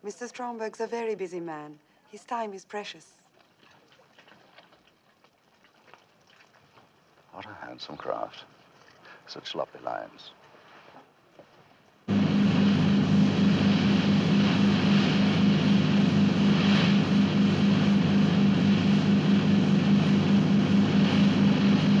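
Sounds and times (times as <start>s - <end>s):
speedboat engine drone: 12.1s - 22.0s.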